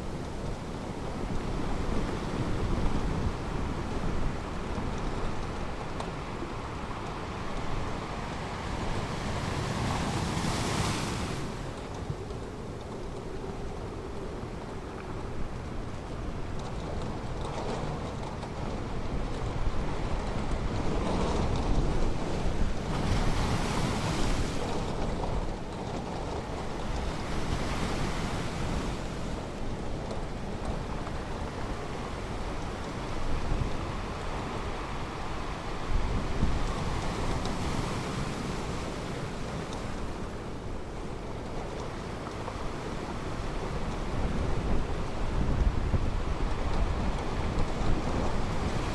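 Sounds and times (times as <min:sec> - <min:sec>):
waves rumbling: 0:00.0 - 0:48.9
wind buffeting microphone: 0:00.0 - 0:48.9.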